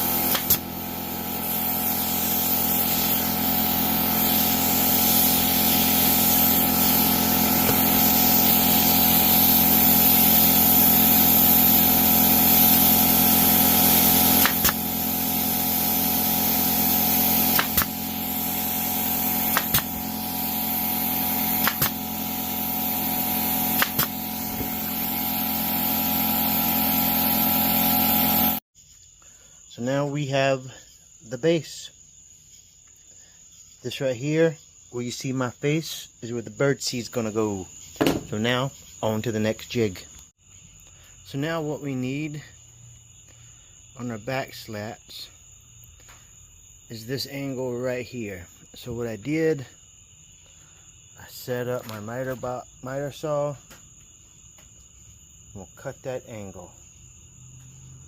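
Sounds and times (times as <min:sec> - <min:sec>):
shop machine drone: 0:00.0 - 0:28.6
nail gun clicks: 0:00.3 - 0:00.6, 0:14.4 - 0:14.8, 0:17.5 - 0:17.9, 0:19.5 - 0:19.9, 0:21.6 - 0:22.0, 0:23.8 - 0:24.1.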